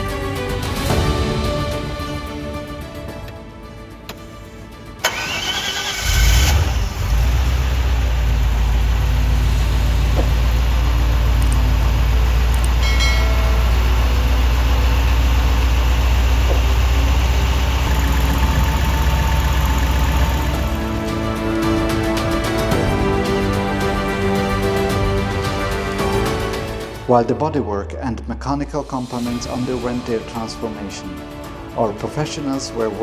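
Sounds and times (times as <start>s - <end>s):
car engine cranking and idling: 5.0s - 25.7s.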